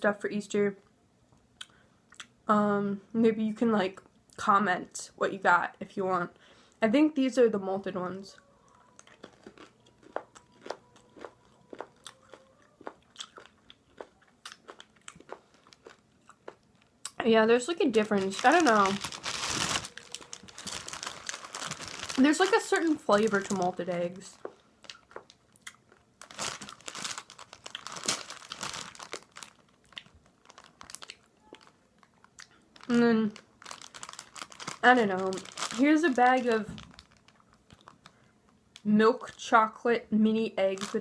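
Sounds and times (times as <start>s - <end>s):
chewing crunchy candy: 8.7s - 17.2s, 18.2s - 39.4s
plastic bag crinkling: 8.9s - 39.5s, 40.6s - 41.0s.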